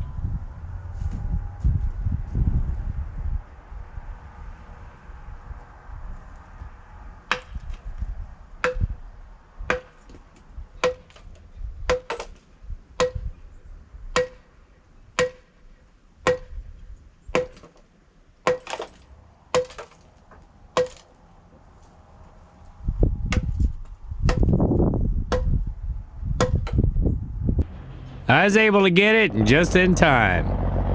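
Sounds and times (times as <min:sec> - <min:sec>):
low rumbling noise: 0:29.2 - 0:30.9.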